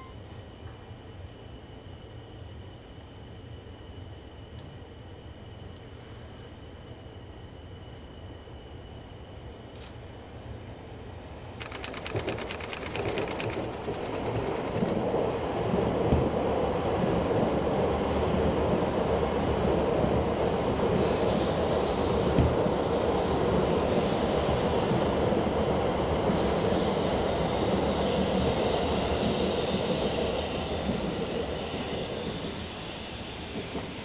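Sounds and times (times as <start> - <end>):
train wheels rumbling: 11.6 - 34.0.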